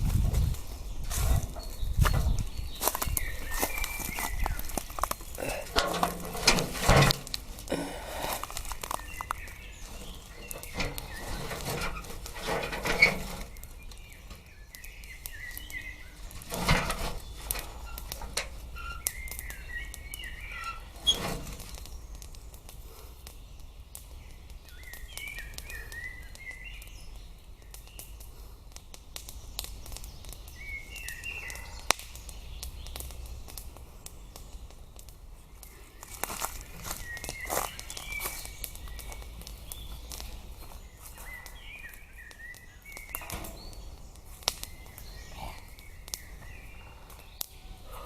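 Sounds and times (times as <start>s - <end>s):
knocks and rustles: 0.0s - 14.5s, 16.2s - 19.2s, 43.1s - 43.8s
songbird chirping: 0.1s - 28.3s, 29.1s - 48.0s.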